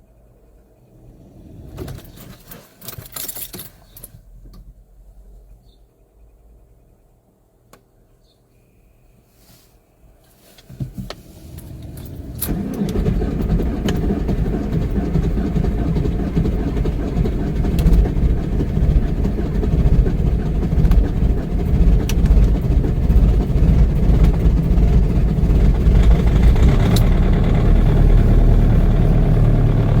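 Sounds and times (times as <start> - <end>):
diesel engine idling: 12.1 - 30.0
starter motor cranking: 12.1 - 30.0.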